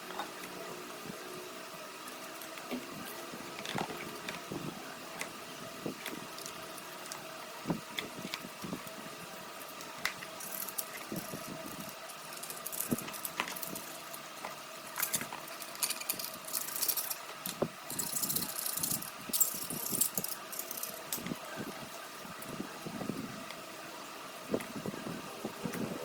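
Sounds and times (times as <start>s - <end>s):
faint steady hum: 0.0s - 26.0s
clicks and rattles of small parts: 9.6s - 21.4s.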